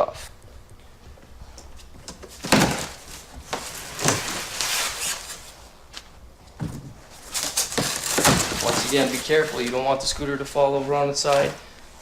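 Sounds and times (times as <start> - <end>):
box thumping: 2.1 - 4.4, 7.6 - 9.2
cardboard box scraping and rustling: 7.4 - 10.0.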